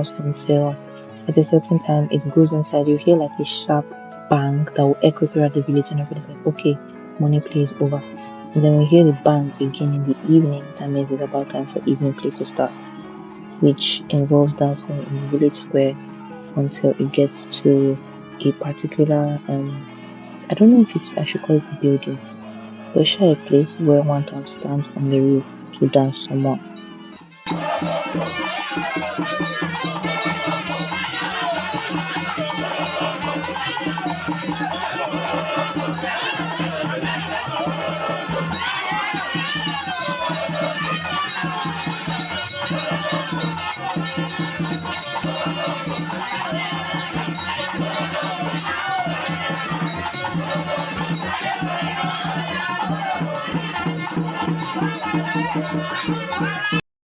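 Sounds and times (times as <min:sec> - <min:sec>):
crowd: 0:00.0 - 0:56.8
voices singing: 0:00.0 - 0:56.8
drums and percussion beating: 0:26.6 - 0:56.8.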